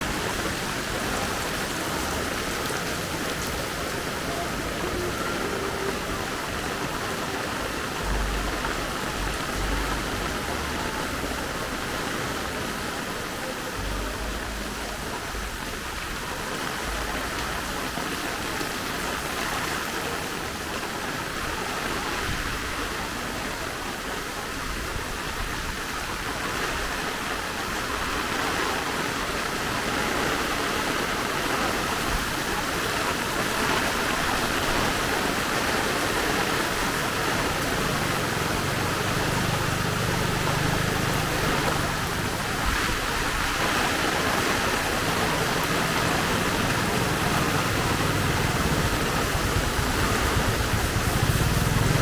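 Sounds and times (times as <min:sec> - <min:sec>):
low rumbles: 0:00.0 - 0:17.9, 0:35.9 - 0:52.0
steady rain falling: 0:00.0 - 0:52.0.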